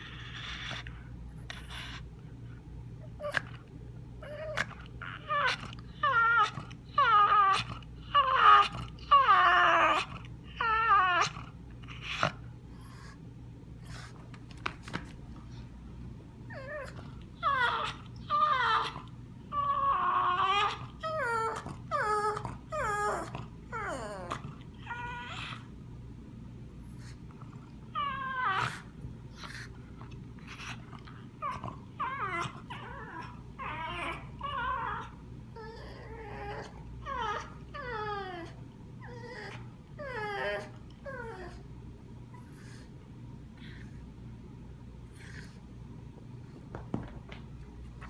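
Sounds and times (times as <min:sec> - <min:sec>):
dog whining: 0:00.0 - 0:02.1, 0:03.0 - 0:03.6, 0:04.2 - 0:13.2, 0:16.5 - 0:25.7, 0:27.9 - 0:29.7, 0:30.4 - 0:41.7, 0:43.6 - 0:44.0.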